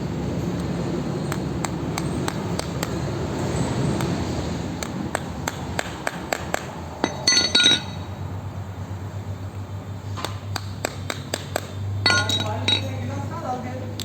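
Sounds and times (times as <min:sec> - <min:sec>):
hammer tapping on metal: 0:04.8 - 0:08.1
ringing metallic clink: 0:07.0 - 0:08.2, 0:12.0 - 0:13.1.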